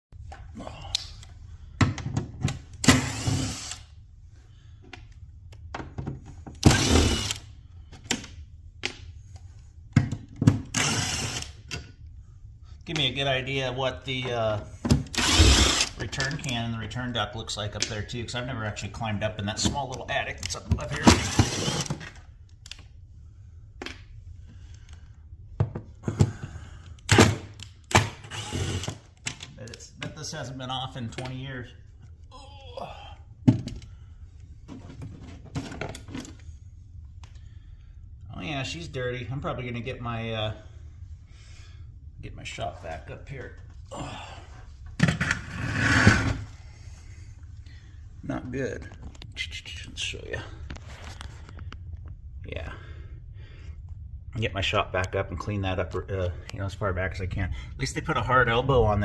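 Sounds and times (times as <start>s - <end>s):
low steady hum: 0.1s - 59.0s
power drill running: 2.8s - 3.8s, 6.7s - 7.4s, 10.7s - 11.6s, 15.1s - 16.0s, 21.2s - 21.9s, 28.2s - 29.0s.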